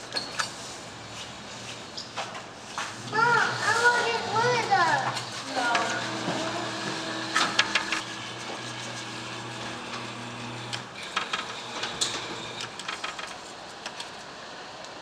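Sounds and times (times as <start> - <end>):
claw machine motors whirring: 3.0 - 14.1.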